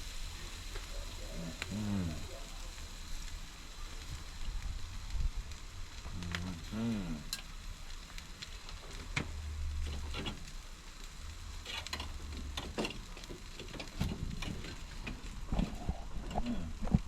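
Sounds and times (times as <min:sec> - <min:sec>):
fire popping and crackling: 0:00.0 - 0:17.0
meat sizzling on a grill: 0:00.0 - 0:17.0
low rumble: 0:13.9 - 0:17.0.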